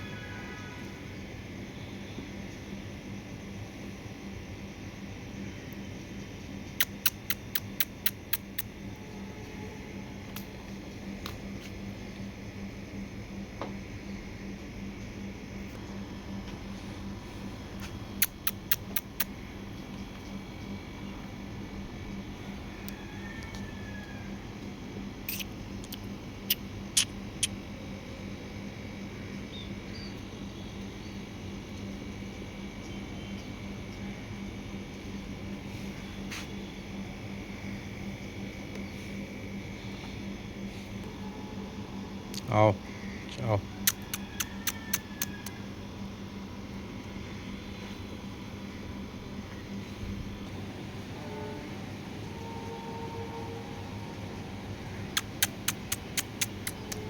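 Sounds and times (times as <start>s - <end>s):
steady low hum: 0.8s - 57.0s
sharp clicks: 6.8s - 8.8s, 18.2s - 19.3s, 25.3s - 27.6s, 43.3s - 45.3s, 55.1s - 57.0s.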